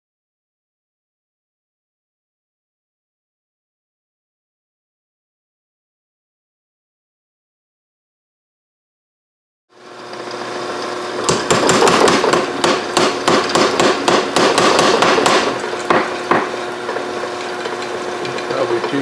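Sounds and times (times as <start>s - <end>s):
steady hum: 9.8s - 19.0s
hammer striking steel on anvil: 11.3s - 16.6s.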